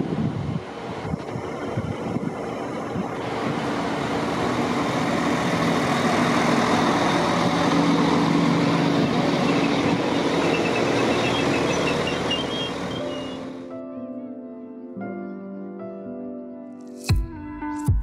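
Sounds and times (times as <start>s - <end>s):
train wheel and rail noise: 0.0s - 13.6s
diesel engine drone: 0.0s - 13.8s
faint high squeals: 8.6s - 13.6s.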